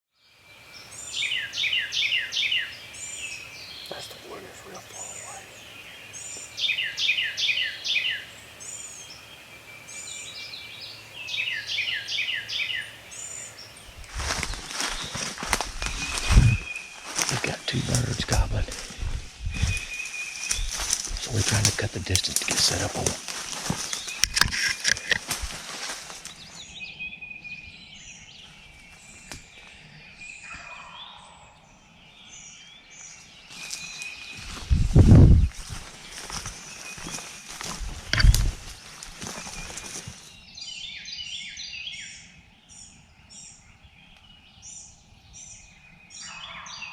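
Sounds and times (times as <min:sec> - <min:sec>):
songbirds singing: 0:00.1 - 0:46.9
crackles of movement through brush: 0:12.6 - 0:26.8, 0:28.4 - 0:29.9, 0:33.0 - 0:40.7.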